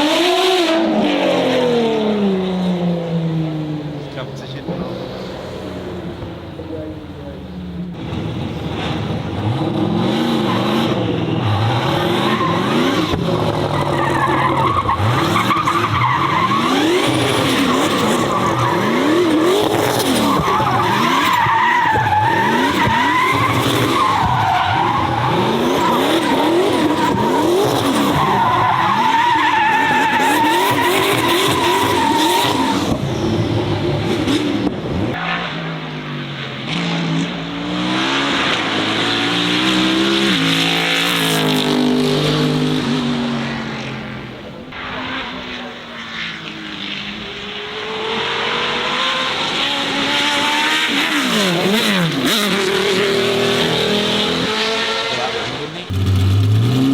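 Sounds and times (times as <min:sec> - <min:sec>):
car engine revving: 0:00.0 - 0:56.9.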